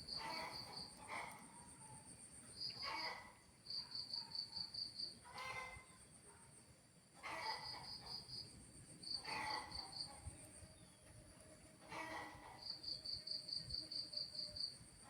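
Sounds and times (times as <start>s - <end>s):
low insect calls: 0.0s - 6.1s, 7.2s - 15.0s
crickets chirping: 1.9s - 5.2s, 7.2s - 11.0s, 12.4s - 15.0s.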